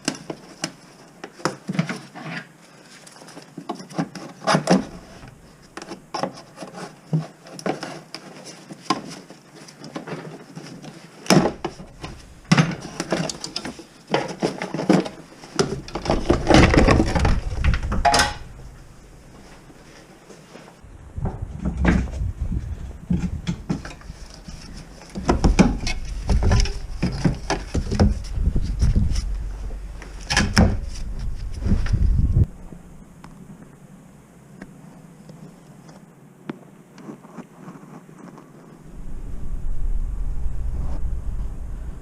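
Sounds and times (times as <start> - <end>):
low rumble: 16.2 - 19.8, 20.8 - 24.6, 25.3 - 34.4, 38.8 - 42.0.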